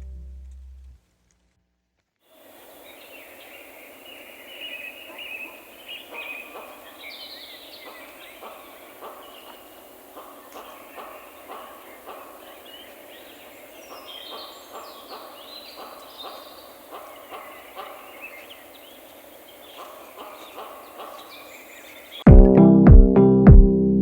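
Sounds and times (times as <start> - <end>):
small birds chirping: 2.3 - 22.3
electronic music with drum beat: 22.3 - 23.8.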